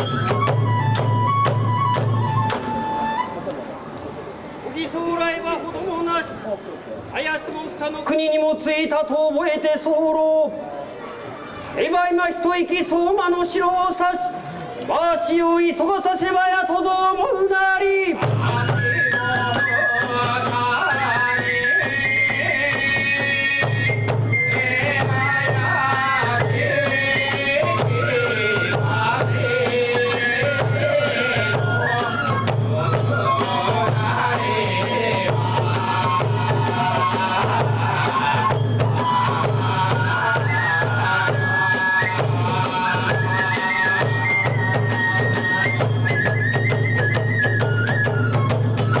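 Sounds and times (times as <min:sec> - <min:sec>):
drum beats: 0:00.0 - 0:03.4, 0:18.2 - 0:49.0
bamboo flute melody: 0:00.0 - 0:04.2, 0:18.1 - 0:49.0.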